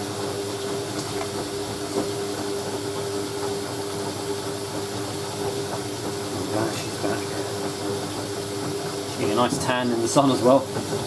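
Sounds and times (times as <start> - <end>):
washing machine hum: 0.0 - 11.0
water hissing into washing machine: 0.0 - 11.0
washing machine knock: 4.2 - 11.0.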